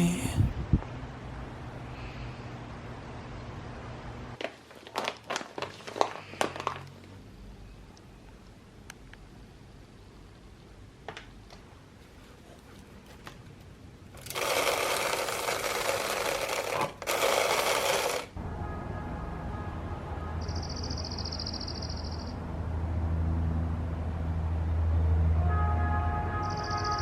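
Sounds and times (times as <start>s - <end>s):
small motor running: 14.2s - 18.3s.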